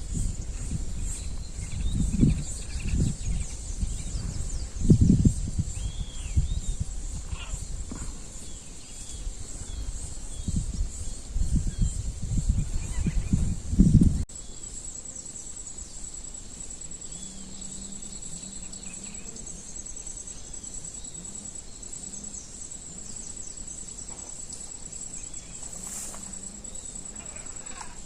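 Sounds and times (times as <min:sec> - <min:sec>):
insects trilling: 0:00.0 - 0:28.0
faint bird chirps: 0:16.9 - 0:28.0
short rustle: 0:25.5 - 0:26.6.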